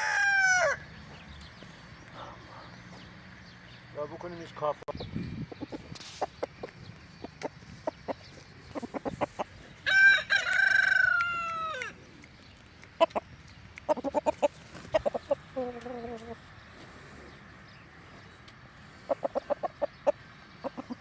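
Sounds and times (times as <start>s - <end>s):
rooster crowing: 0.0s - 1.0s, 9.8s - 12.0s
chickens clucking: 5.3s - 17.3s, 18.4s - 21.0s.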